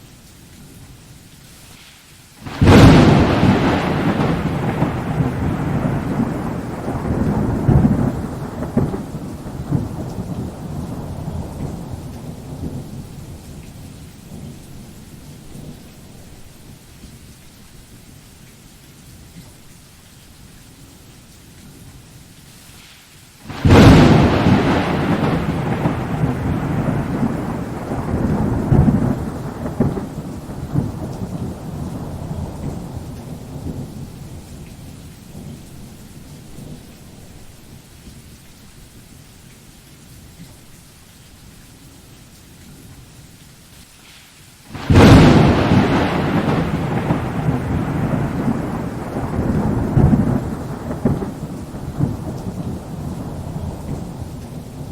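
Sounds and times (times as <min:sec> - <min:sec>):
rain hiss: 0:00.0 - 0:54.9
thunderclap: 0:02.4 - 0:12.9, 0:23.5 - 0:34.5, 0:44.8 - 0:54.9
thunder rumbling: 0:02.4 - 0:16.4, 0:23.5 - 0:37.6, 0:44.8 - 0:54.9.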